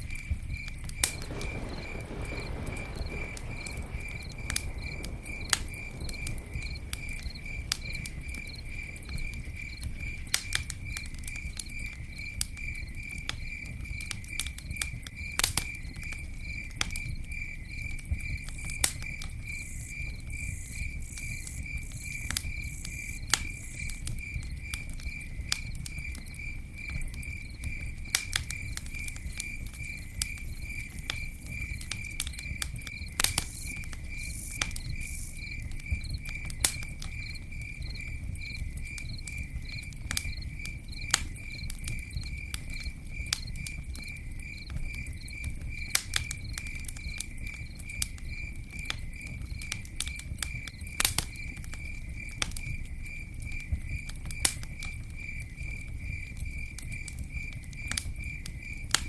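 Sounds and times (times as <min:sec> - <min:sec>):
campfire crackling and popping: 0:00.0 - 0:59.0
cricket chirping: 0:00.0 - 0:59.0
buzzy insect: 0:19.5 - 0:24.0.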